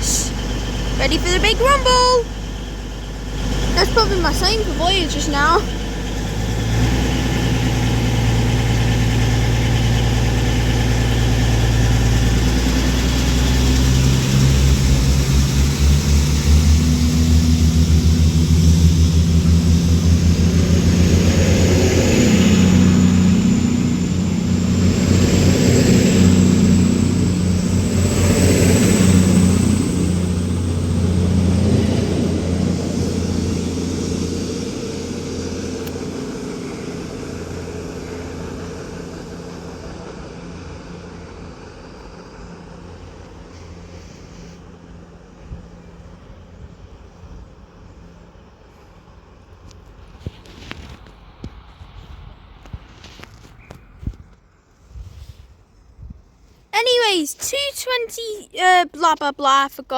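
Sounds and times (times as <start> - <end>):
train cars passing: 0.0 - 44.0
thin rising whine: 0.0 - 48.2
diesel engines rumbling: 0.0 - 54.8, 56.6 - 59.9.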